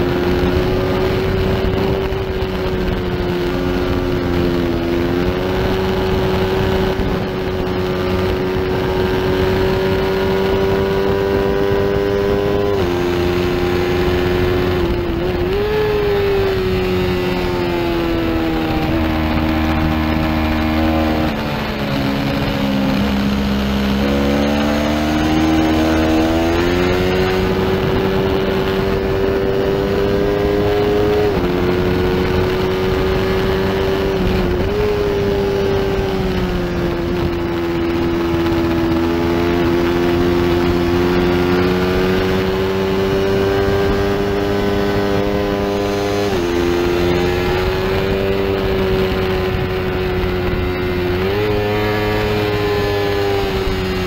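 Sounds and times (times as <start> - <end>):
motorcycle engine at high revs: 0.0 - 54.0
wind rush: 0.0 - 54.0.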